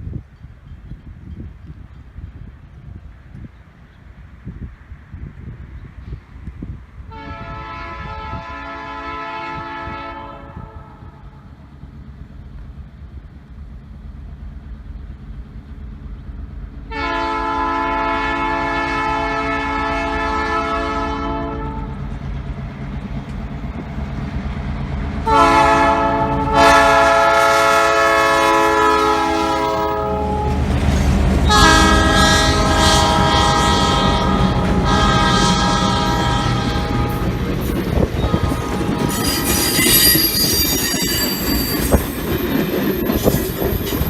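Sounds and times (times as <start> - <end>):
low rumble of train: 0.0 - 44.0
locomotive air horn blasts: 7.1 - 11.2, 16.9 - 22.0, 25.2 - 30.7, 31.4 - 41.3.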